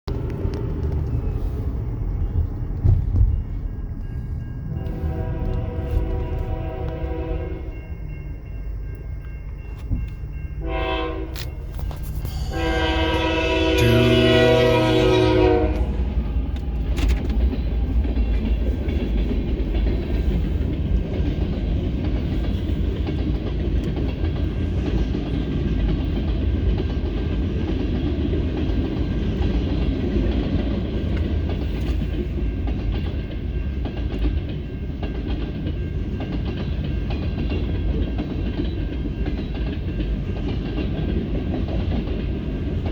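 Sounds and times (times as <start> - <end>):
freight train rumbling past: 0.0 - 42.9
train air horn blasts: 4.8 - 7.8, 10.6 - 16.2
wheels clicking over rail: 15.7 - 42.9.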